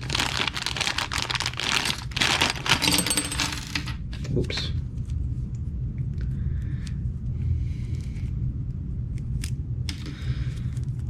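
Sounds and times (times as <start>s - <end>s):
plastic packaging rustling: 0.0s - 4.0s
steady low hum: 0.0s - 11.0s.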